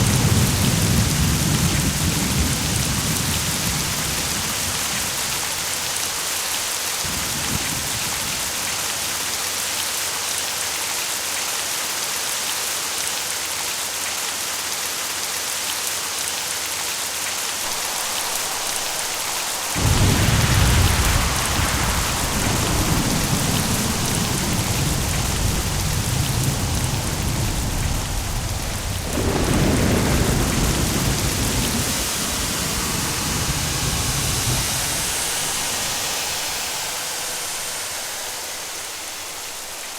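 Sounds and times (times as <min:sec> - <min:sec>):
thunder rumbling: 0:00.0 - 0:09.4, 0:17.6 - 0:39.9
heavy rain hissing: 0:00.0 - 0:39.9.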